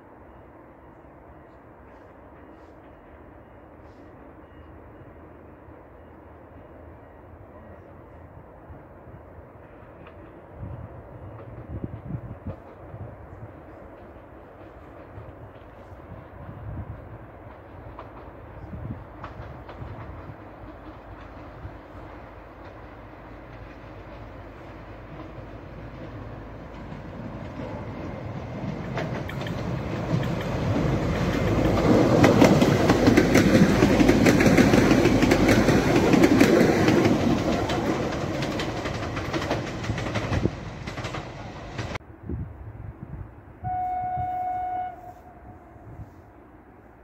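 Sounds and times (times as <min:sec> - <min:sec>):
passenger train passing: 0:00.0 - 0:47.0
wheels clicking over rail joints: 0:17.1 - 0:42.0
train horn blast: 0:43.6 - 0:46.3.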